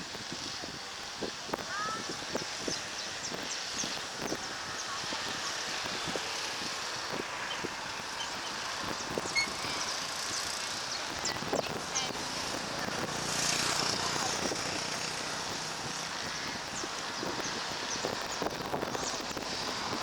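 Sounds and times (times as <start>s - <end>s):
distant jet engine rush: 0.0s - 20.0s
bird chirps: 7.4s - 12.1s.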